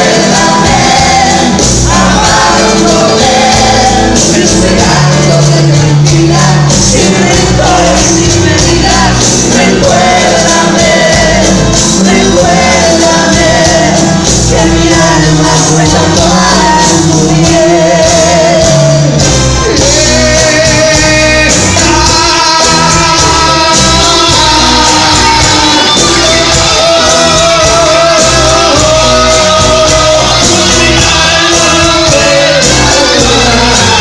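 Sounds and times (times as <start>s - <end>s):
band playing a ballad: 0.0s - 34.0s
person singing with vibrato: 0.0s - 34.0s.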